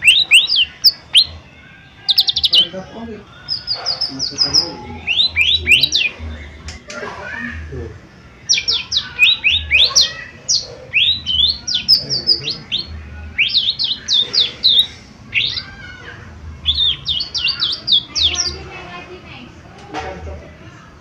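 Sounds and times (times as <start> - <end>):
bird singing sharp whistled notes: 3.4 - 6.8, 8.4 - 15.7.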